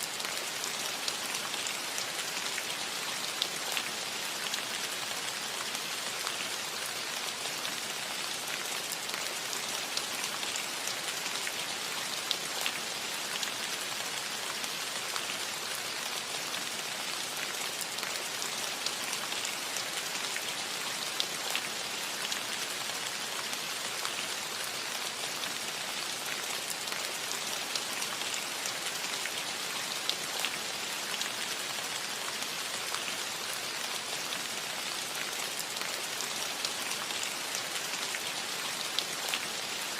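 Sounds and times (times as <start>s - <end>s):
rain on a roof: 0.0s - 39.9s.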